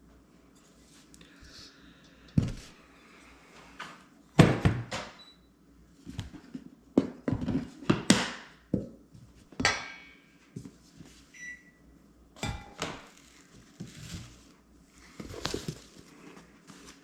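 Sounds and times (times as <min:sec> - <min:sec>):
dishes and utensils clanking: 0:12.4 - 0:13.0.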